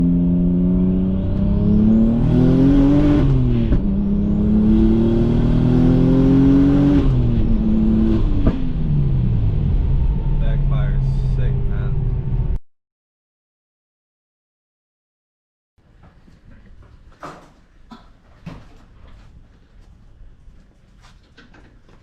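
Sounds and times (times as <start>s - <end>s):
car engine accelerating hard: 0.0s - 12.6s.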